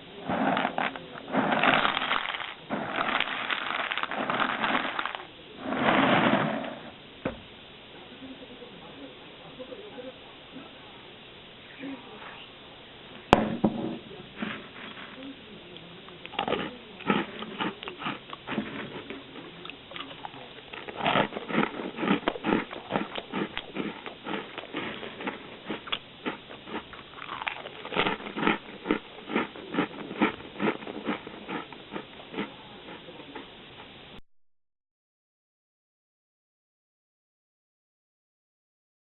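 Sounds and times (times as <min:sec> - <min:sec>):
crunchy chewing: 0:00.2 - 0:06.6, 0:14.2 - 0:34.0.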